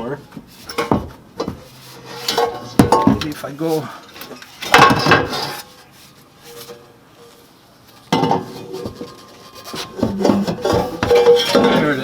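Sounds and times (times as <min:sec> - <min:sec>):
metal pipe scraping and clanking: 0:01.6 - 0:02.8, 0:03.7 - 0:05.8, 0:08.2 - 0:12.0.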